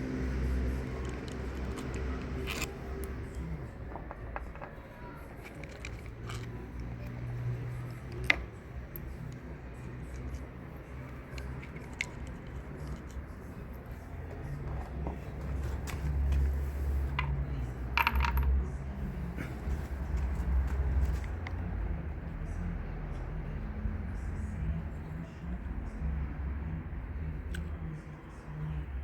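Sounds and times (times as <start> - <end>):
metal tools clicking and clinking: 0.7 - 9.4, 18.0 - 18.6.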